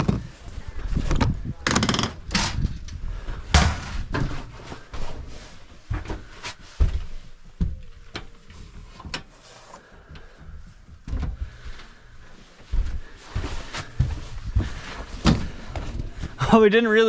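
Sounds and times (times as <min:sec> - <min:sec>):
knocks and thumps: 0:00.0 - 0:00.4, 0:14.0 - 0:16.3.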